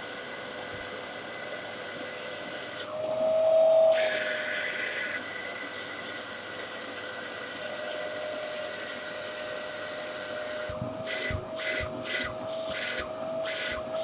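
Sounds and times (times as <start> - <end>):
vacuum cleaner motor whine: 0.0 - 14.0
high hiss: 10.5 - 14.0.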